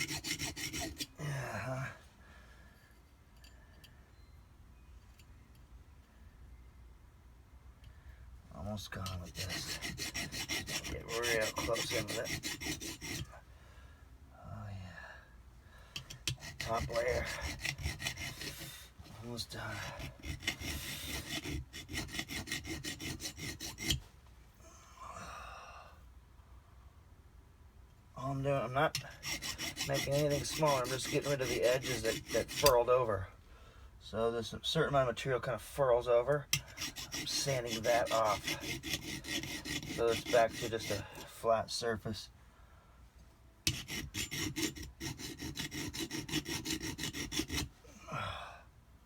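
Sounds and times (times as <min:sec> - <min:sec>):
hand file rasping on metal: 0:00.0 - 0:01.2, 0:08.9 - 0:13.4, 0:16.0 - 0:24.1, 0:28.5 - 0:33.0, 0:36.5 - 0:41.6, 0:43.7 - 0:47.8.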